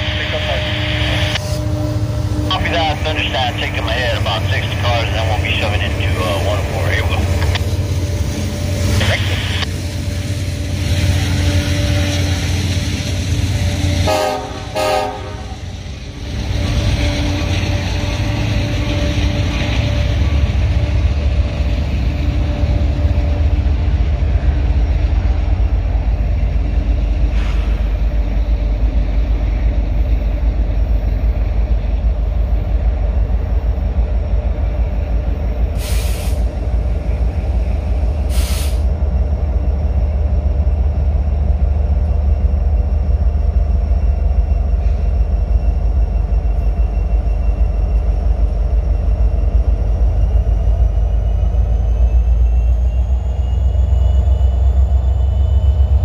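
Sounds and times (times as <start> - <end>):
diesel locomotive rumbling: 0.0 - 56.0
air hisses: 35.8 - 36.5, 38.3 - 38.9.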